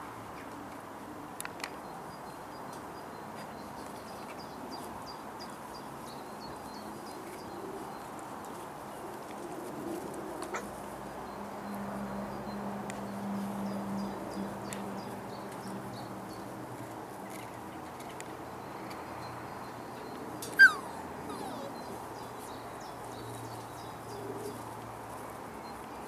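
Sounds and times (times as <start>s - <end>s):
outdoor background noise: 0.0s - 26.0s
small bird chirping: 20.0s - 23.8s.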